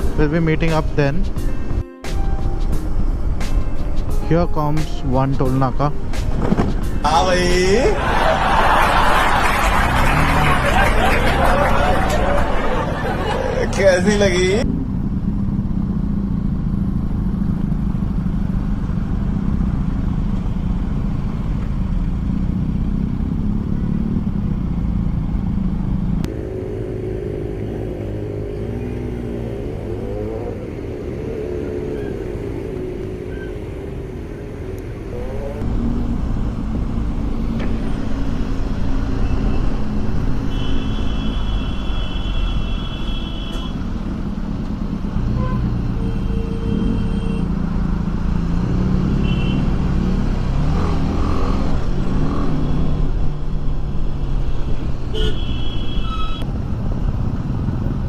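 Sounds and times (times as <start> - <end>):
road and wind rumble: 0.0 - 58.0
motorcycle engine running: 14.6 - 27.7
vehicle horns honking: 40.4 - 43.9, 45.3 - 47.5, 49.1 - 49.8, 55.1 - 56.4.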